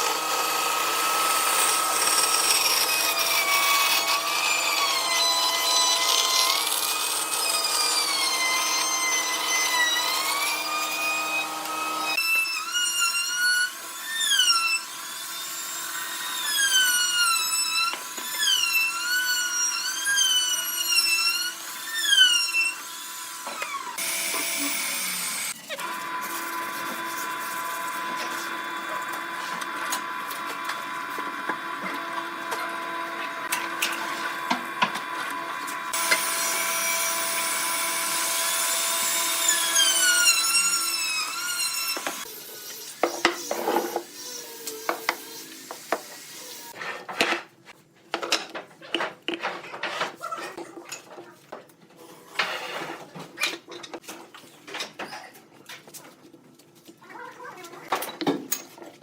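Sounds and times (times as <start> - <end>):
lathe tool scraping wood: 0.0 - 15.2, 16.3 - 47.3.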